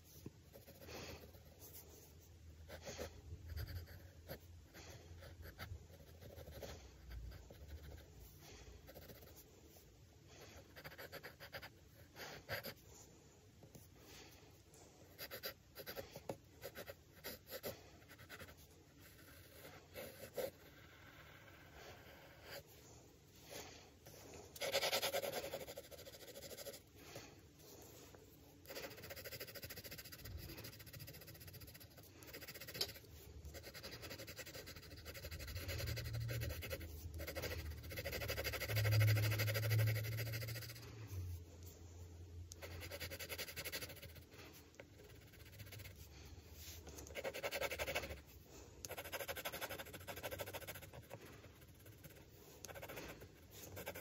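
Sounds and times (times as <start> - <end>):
pencil scratching on paper: 0.0 - 9.8, 10.4 - 12.9, 15.0 - 22.8, 23.5 - 27.2, 28.6 - 41.4, 42.6 - 54.0.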